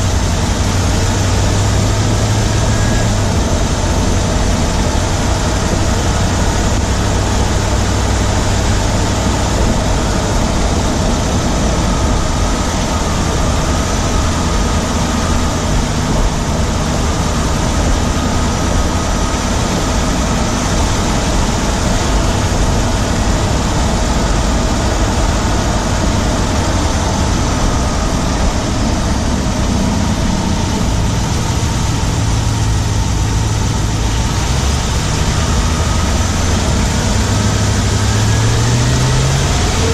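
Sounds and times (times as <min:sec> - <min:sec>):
engine running with fast ticking: 0:00.0 - 0:39.9.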